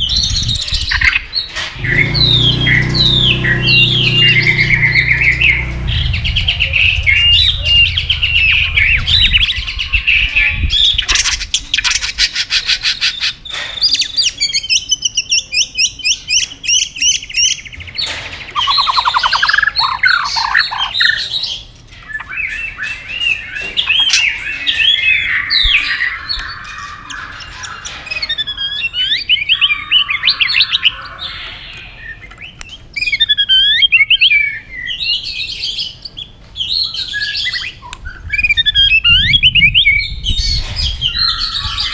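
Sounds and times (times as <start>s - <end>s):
bird singing varied song: 0.0s - 41.9s.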